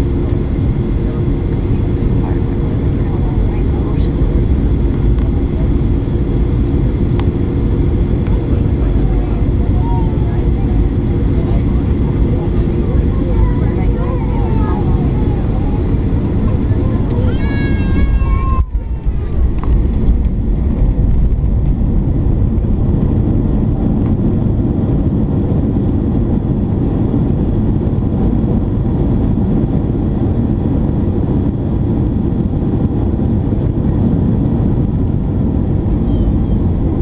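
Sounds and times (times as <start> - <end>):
airliner engines rumbling in cabin: 0.0 - 37.0.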